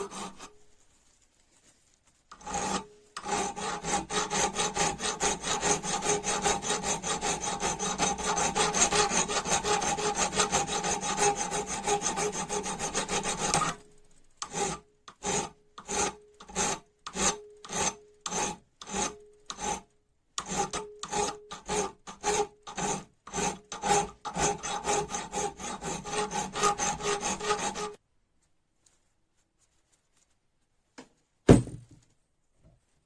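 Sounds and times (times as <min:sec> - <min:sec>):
hand file rasping on metal: 0:00.0 - 0:00.6, 0:02.3 - 0:28.0.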